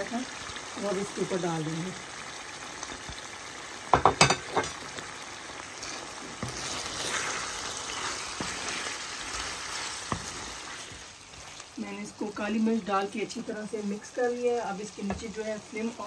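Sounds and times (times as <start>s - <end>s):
food sizzling in a pan: 0.0s - 16.0s
spatula knocking on pan: 3.9s - 4.6s, 15.0s - 15.3s
spatula stirring and scraping: 5.5s - 14.0s.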